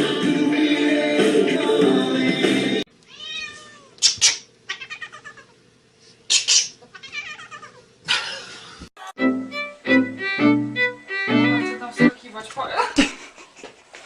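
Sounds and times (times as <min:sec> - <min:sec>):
cat meowing: 0:03.1 - 0:04.0, 0:04.7 - 0:05.6, 0:06.9 - 0:07.8.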